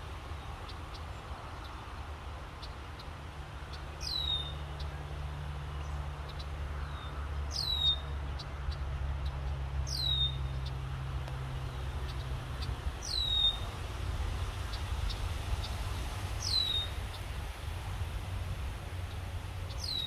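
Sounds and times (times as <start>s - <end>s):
songbird whistling: 9.9s - 10.4s, 13.0s - 13.6s, 16.4s - 16.9s.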